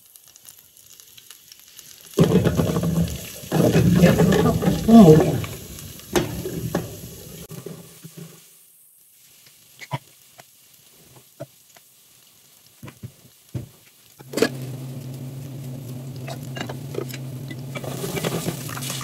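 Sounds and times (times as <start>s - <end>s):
food frying in a pan: 0.0s - 19.0s
kitchen utensils knocking: 2.2s - 7.1s
steady low hum: 14.5s - 19.0s.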